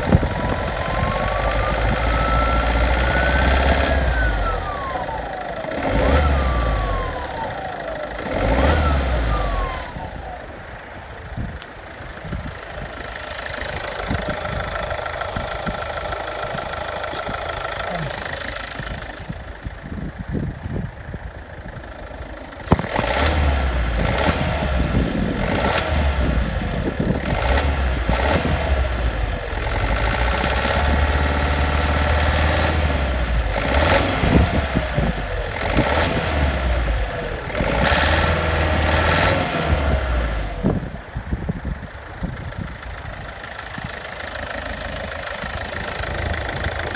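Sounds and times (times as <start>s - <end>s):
turbo whine howling: 0.0s - 8.1s
diesel engine revving: 0.0s - 46.9s.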